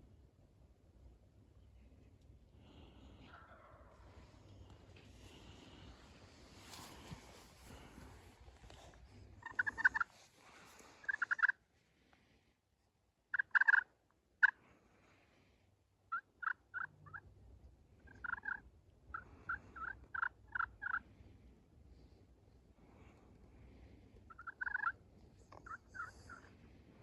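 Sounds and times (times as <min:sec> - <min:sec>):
turkey calling: 0:03.2 - 0:04.7, 0:09.4 - 0:10.1, 0:11.0 - 0:11.6, 0:13.3 - 0:14.6, 0:16.1 - 0:17.3, 0:18.0 - 0:21.0, 0:24.3 - 0:26.6.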